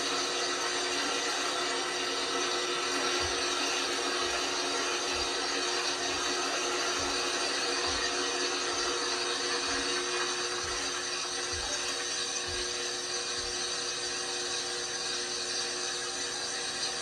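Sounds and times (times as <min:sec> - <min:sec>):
washing machine whirring: 0:00.0 - 0:17.0
washing machine drum thuds: 0:05.1 - 0:09.0.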